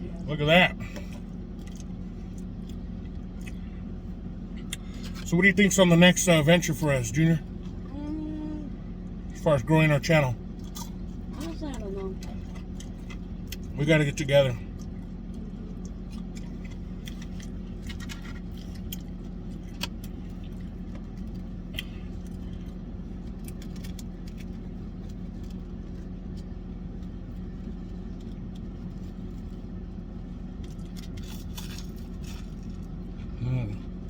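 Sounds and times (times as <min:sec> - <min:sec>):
low motor hum: 0:00.0 - 0:34.0.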